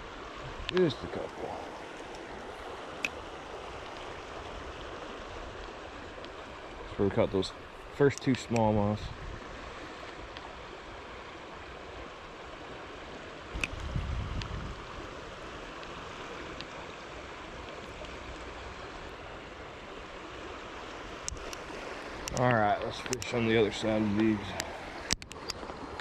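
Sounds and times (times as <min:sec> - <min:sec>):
creek water running: 0:00.0 - 0:26.0
faint clicks: 0:00.6 - 0:02.3, 0:03.0 - 0:03.2, 0:03.8 - 0:04.1, 0:08.1 - 0:08.8, 0:15.7 - 0:16.8, 0:17.6 - 0:18.5, 0:21.2 - 0:23.4, 0:24.4 - 0:26.0.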